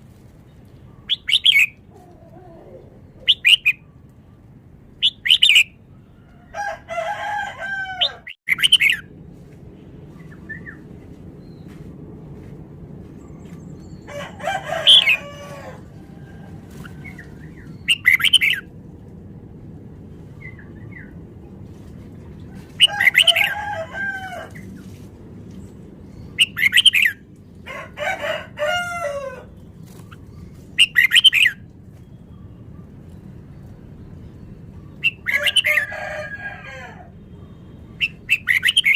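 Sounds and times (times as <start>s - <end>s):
steady low hum: 8.9s - 14.4s, 15.5s - 22.8s.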